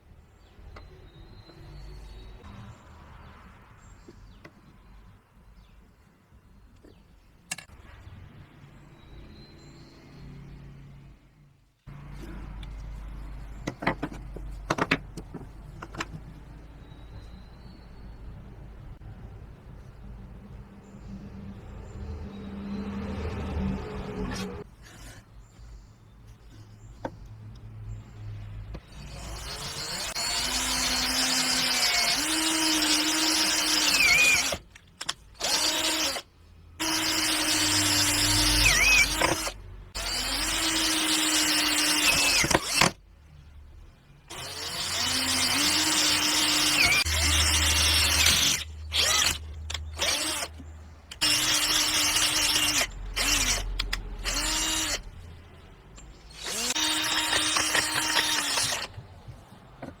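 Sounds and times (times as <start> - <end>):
power tool motor running: 29.0 - 34.6, 35.4 - 36.2, 36.8 - 43.0, 44.3 - 50.5, 51.1 - 55.0, 56.3 - 59.0.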